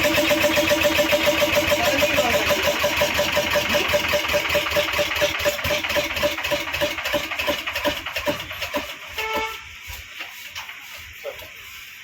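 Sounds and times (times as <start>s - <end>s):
diesel engine running: 0.0s - 9.1s.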